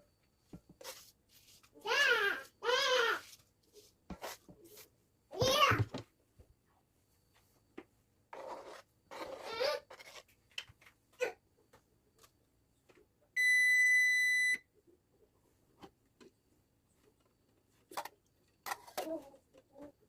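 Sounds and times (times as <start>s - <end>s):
long electronic beep: 13.4s - 14.6s.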